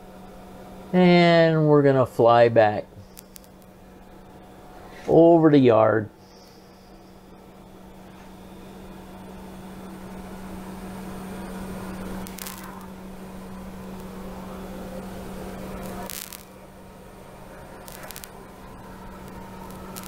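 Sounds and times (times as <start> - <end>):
faint clicks: 3.0 - 3.7, 17.8 - 18.4, 19.2 - 20.0
electric motor hum: 6.4 - 20.0.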